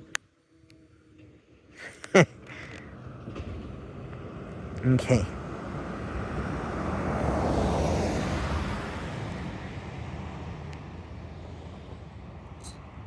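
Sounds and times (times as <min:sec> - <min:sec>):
vehicle driving past: 0:02.8 - 0:13.0.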